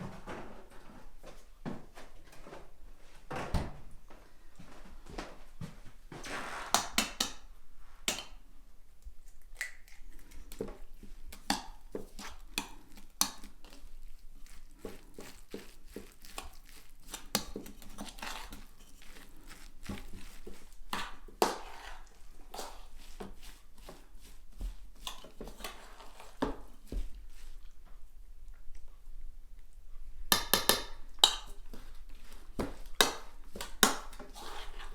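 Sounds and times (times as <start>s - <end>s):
crushing and rustling: 9.3s - 27.8s.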